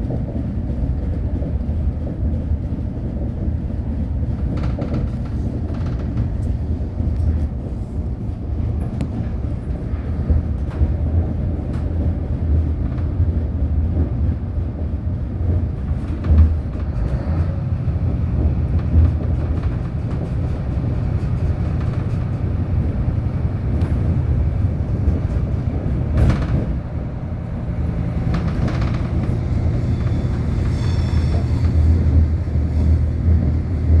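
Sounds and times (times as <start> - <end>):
train rumbling on rails: 0.0 - 34.0
track clicks and knocks: 15.8 - 34.0.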